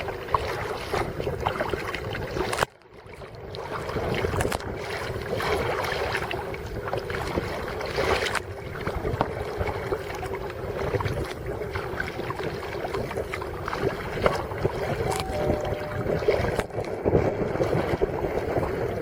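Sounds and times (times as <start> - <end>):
paddle strokes splashing: 0.0 - 19.0
small water splashes: 0.0 - 19.0
steady low rumble: 8.5 - 19.0.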